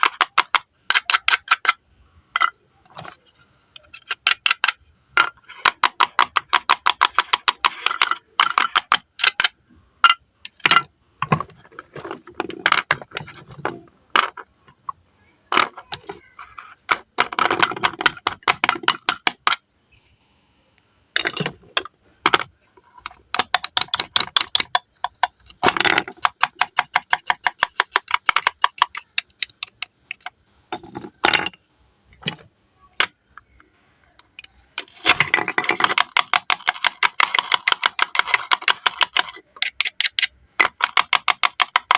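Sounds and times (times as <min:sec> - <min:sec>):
sharp clicks and taps: 0:21.2 - 0:30.3.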